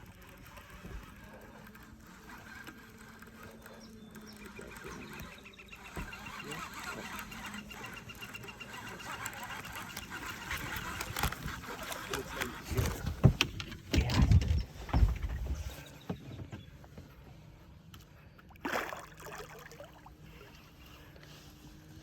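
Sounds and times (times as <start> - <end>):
heavy low thumps on boat: 13.0 - 16.7
water splash: 18.6 - 20.0.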